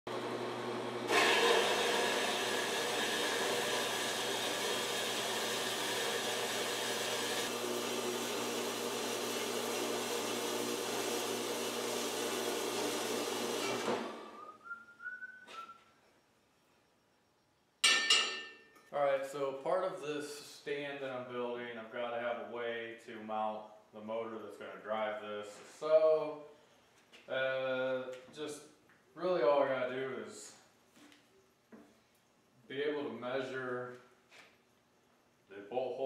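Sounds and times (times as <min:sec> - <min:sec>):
power tool motor running: 0:00.1 - 0:14.4
sharp clink: 0:17.8 - 0:18.9.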